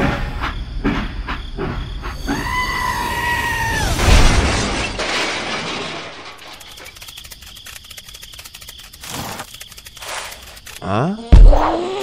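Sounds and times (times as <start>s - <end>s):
toy train crash: 3.7s - 8.0s
sharp clicks: 6.4s - 10.9s.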